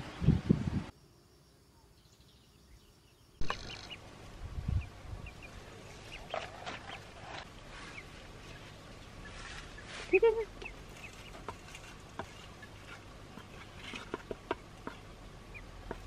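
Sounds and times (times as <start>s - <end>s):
high bird calls: 2.0s - 4.1s, 4.7s - 11.5s
pitched bird call: 3.4s - 4.0s.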